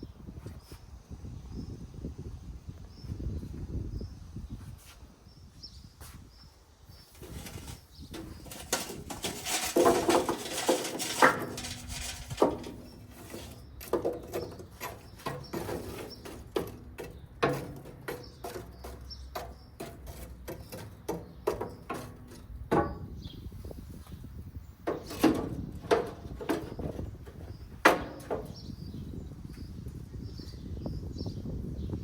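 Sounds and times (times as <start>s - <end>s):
utensils clicking and knocking: 7.2s - 22.2s.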